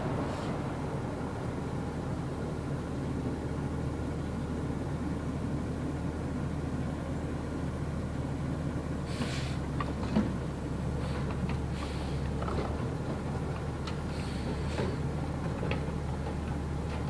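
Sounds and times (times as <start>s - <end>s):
garbage truck diesel engine running: 0.0s - 17.0s
short hiss: 9.1s - 9.6s.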